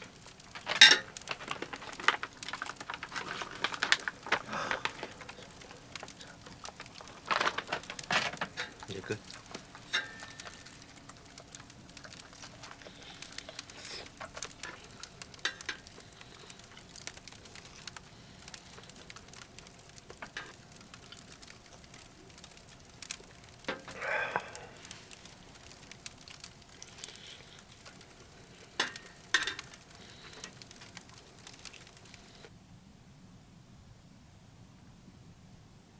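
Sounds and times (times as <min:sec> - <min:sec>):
firewood crackling in a stove: 0:00.0 - 0:35.9.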